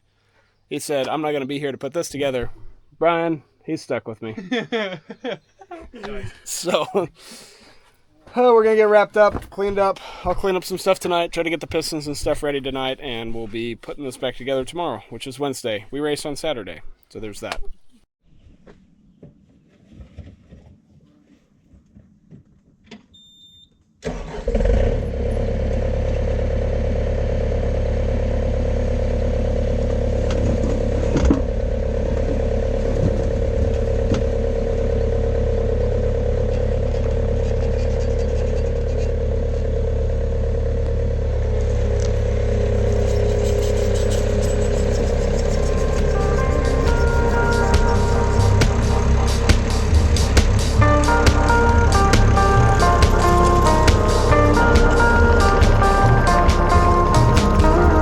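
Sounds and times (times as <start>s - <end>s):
vehicle engine running: 24.7s - 58.0s.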